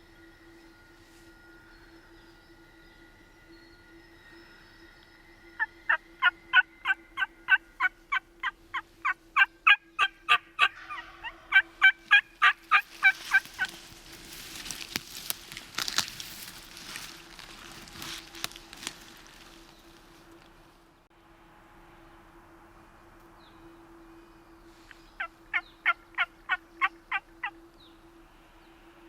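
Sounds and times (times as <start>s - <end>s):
turkey yelps: 5.9s - 13.8s, 25.2s - 27.6s
rustling with clicks: 12.6s - 20.6s.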